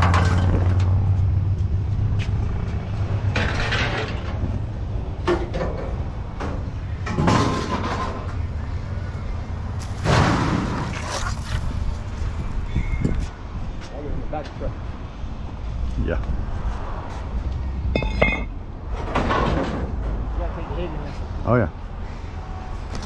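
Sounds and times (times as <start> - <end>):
clattering metal bangs: 5.2 - 8.4.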